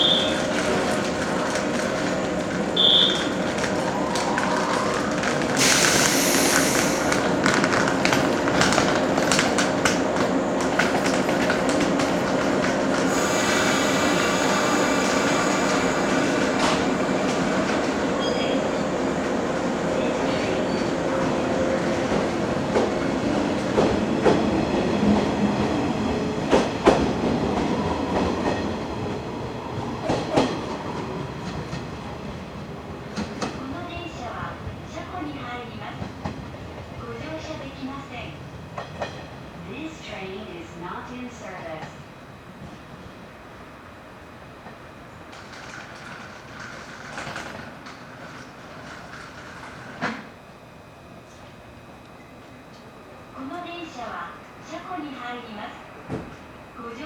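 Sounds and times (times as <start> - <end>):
train rumble: 0.0 - 56.8
train motor whine: 2.7 - 7.3, 12.9 - 18.6
air hiss: 5.6 - 7.3, 13.0 - 17.6
wheels clicking over rail joints: 45.3 - 50.2.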